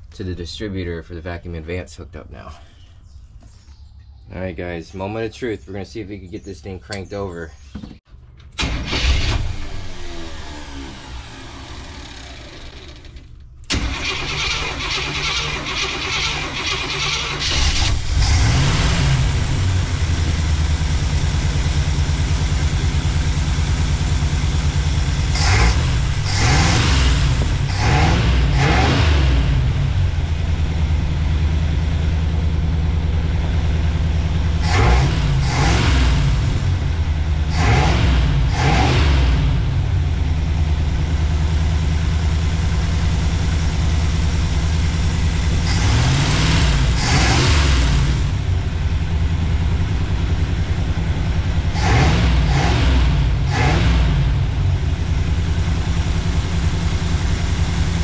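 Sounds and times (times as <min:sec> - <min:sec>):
engine revving: 0:08.6 - 0:13.0, 0:13.7 - 0:58.0
starter motor cranking: 0:08.6 - 0:18.4
engine idling: 0:19.1 - 0:28.7, 0:29.4 - 0:34.7, 0:39.6 - 0:47.0, 0:48.0 - 0:53.6, 0:54.2 - 0:58.0.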